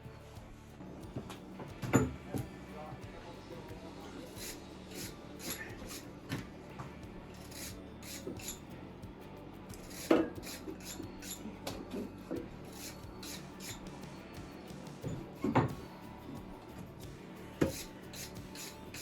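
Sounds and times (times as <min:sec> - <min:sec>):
metal parts clinking and scraping: 0:09.8 - 0:12.1.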